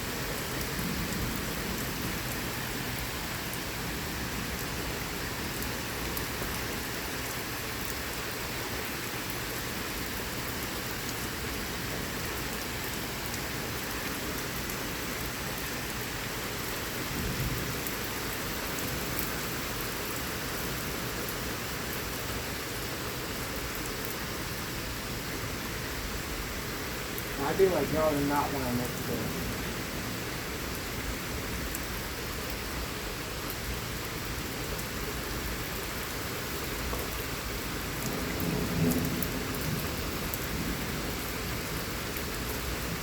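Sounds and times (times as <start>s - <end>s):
heavy rain: 0.0s - 43.0s
low rumble of thunder: 0.1s - 4.7s, 17.1s - 17.9s, 27.3s - 30.2s, 37.9s - 43.0s.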